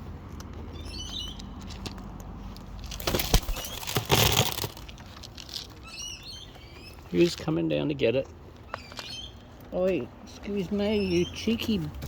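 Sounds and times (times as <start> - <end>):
small birds chirping: 0.5 - 4.1, 5.6 - 12.0
parrot wings flapping: 3.0 - 4.0.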